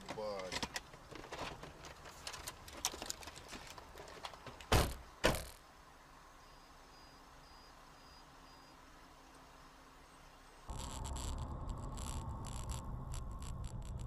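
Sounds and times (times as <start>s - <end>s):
handling and rustling noises: 0.0s - 5.6s.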